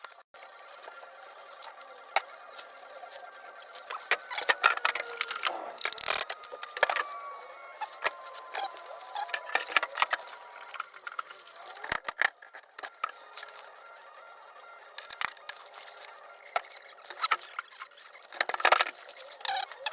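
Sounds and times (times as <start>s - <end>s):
small hard objects clicking: 4.0s - 7.1s.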